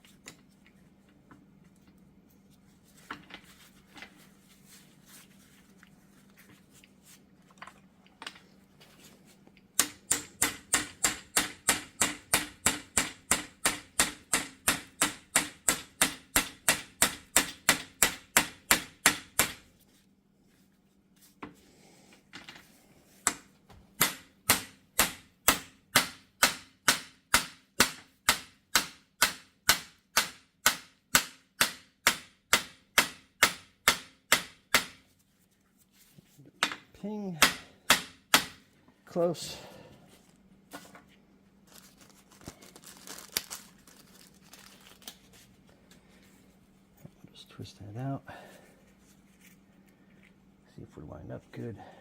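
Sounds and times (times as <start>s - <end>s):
hammer tapping metal: 9.8s - 19.6s.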